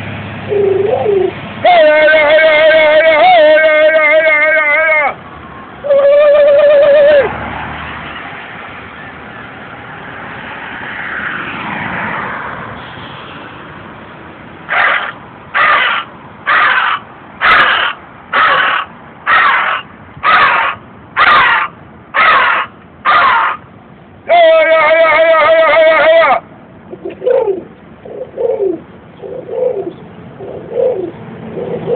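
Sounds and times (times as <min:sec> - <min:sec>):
man imitating crow caws: 0:00.5 - 0:05.2, 0:05.8 - 0:07.3, 0:14.7 - 0:23.6, 0:24.3 - 0:28.4.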